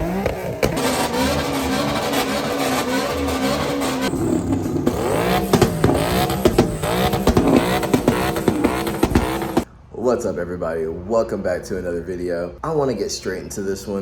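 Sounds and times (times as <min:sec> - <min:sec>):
car engine revving: 0:00.0 - 0:09.7
exhaust pops: 0:00.0 - 0:09.7.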